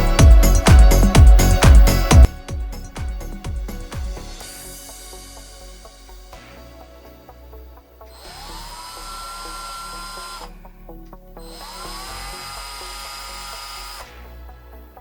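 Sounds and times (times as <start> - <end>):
background music: 0.0 - 15.0
electric toy car motor whining: 8.1 - 10.8, 11.4 - 14.5.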